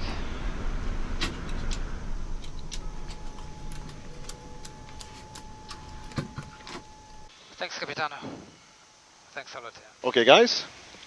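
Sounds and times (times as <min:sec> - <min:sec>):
jet engines winding down: 0:00.0 - 0:07.3
faint steady tone: 0:00.0 - 0:10.3.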